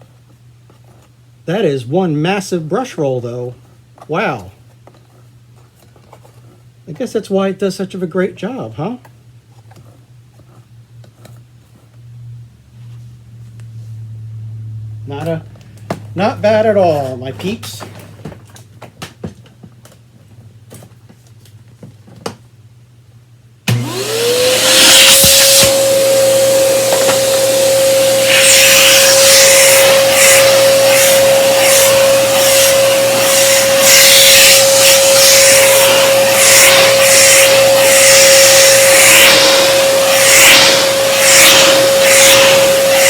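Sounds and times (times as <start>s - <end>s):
vacuum cleaner motor whining: 23.7s - 43.0s.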